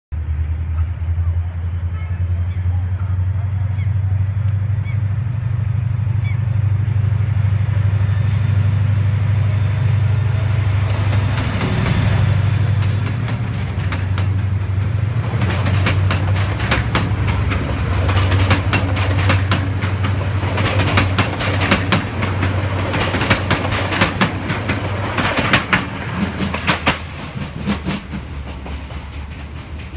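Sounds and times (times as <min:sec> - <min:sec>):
train engine drone: 0:00.1 - 0:29.9
train wheels clattering over rail joints: 0:10.8 - 0:29.9.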